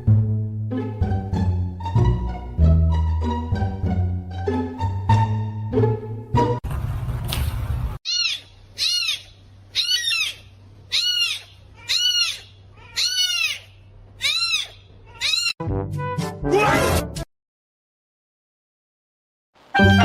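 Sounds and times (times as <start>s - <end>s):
small animal high-pitched calls: 8.1s - 15.6s.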